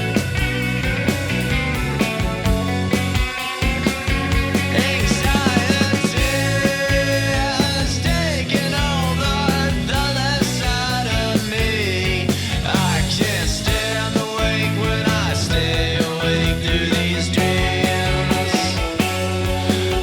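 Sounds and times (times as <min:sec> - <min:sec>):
distorted guitar: 0:00.0 - 0:20.0
rock drum beat: 0:00.0 - 0:20.0
person singing: 0:04.7 - 0:19.2.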